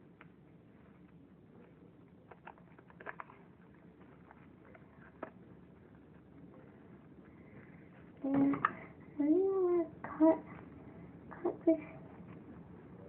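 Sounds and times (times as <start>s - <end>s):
soft clicks and rustles of slime: 0.0s - 8.9s.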